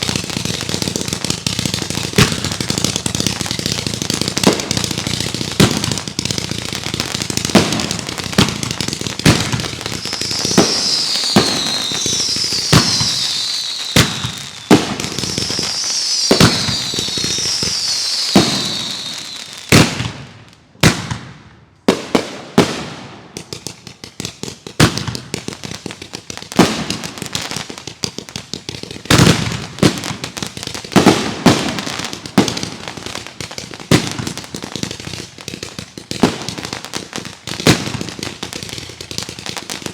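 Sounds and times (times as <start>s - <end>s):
fireworks bangs and crackles: 0.0s - 39.9s
fireworks whistles falling in pitch: 8.4s - 19.9s.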